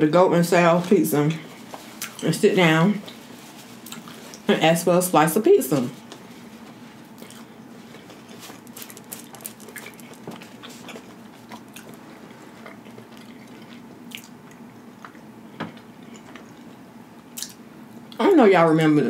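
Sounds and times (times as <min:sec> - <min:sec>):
faint low hum: 0:00.0 - 0:19.0
person chewing food: 0:01.9 - 0:02.2, 0:03.8 - 0:04.4, 0:07.1 - 0:18.2
mouth clicks and smacks: 0:17.4 - 0:17.6.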